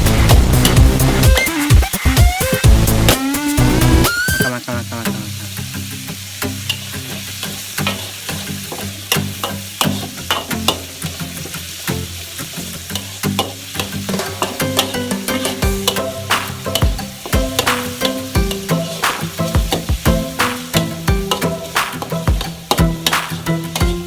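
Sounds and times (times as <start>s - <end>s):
food sizzling in a frying pan: 0.0s - 24.0s
utensil knocking against a pan: 14.1s - 23.4s.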